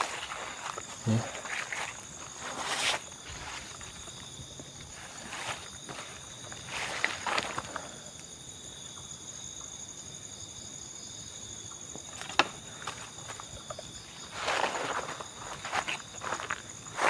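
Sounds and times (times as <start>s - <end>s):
rustling footsteps: 0.0s - 7.9s, 12.8s - 17.0s
crickets trilling: 0.0s - 17.0s.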